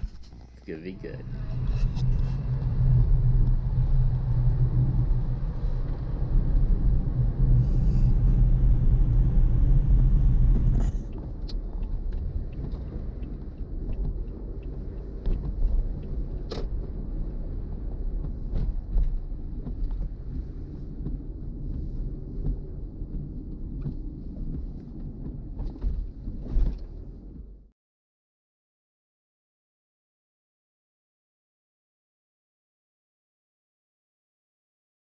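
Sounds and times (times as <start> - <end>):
car engine and road rumble: 0.0 - 27.7.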